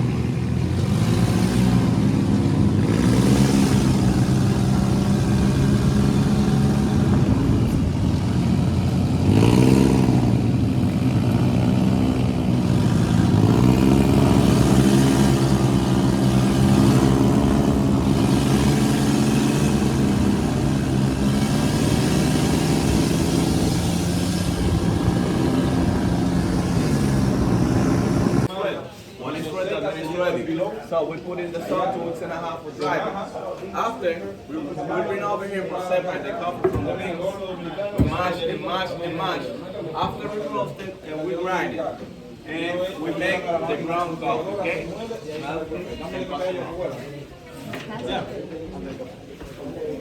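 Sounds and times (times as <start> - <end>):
dune buggy engine running: 0.0 - 28.5
wind and road noise: 0.0 - 28.5.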